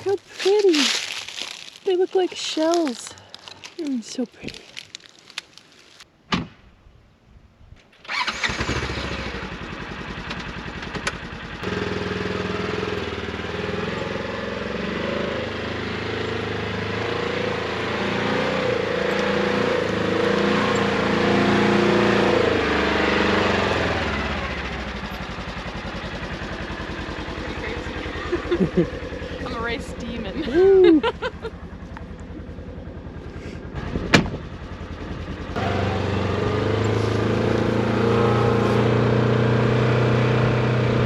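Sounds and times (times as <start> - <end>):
utility vehicle engine running: 0.0 - 6.0, 8.0 - 41.0.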